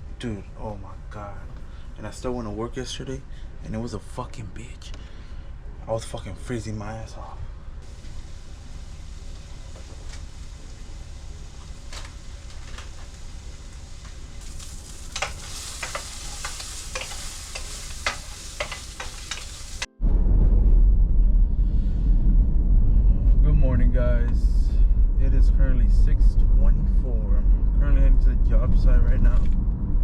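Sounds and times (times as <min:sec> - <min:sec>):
food sizzling in a pan: 0:07.8 - 0:19.9.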